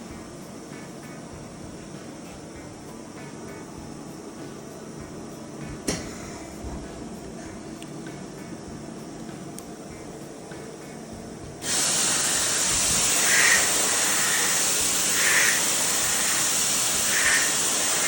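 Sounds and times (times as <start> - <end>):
machine rushing hiss: 11.6 - 18.0.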